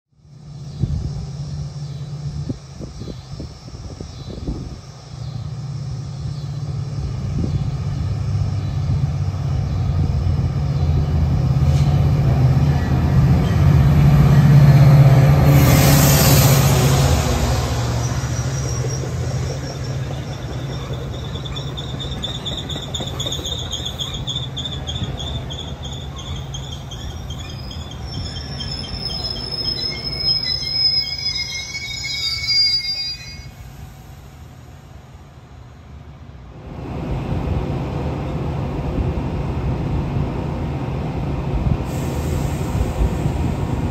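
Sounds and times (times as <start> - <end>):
diesel locomotive engine drone: 0.1 - 43.9
train wheels squealing: 15.5 - 34.0
burst of hiss: 41.9 - 43.7.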